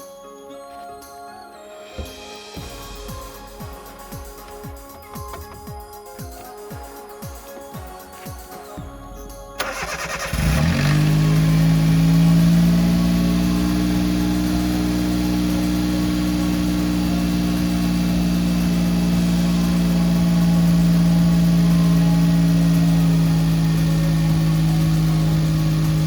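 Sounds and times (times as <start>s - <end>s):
engine idling: 9.6s - 26.0s
starter cranking engine: 9.6s - 26.0s.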